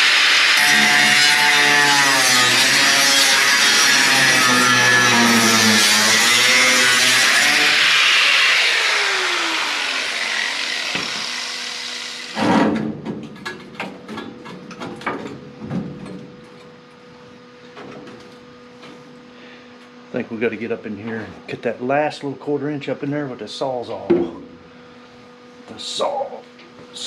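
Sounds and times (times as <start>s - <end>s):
cut-off wheel grinding metal: 0.0s - 12.5s
metal clanks and knocks: 12.4s - 16.7s.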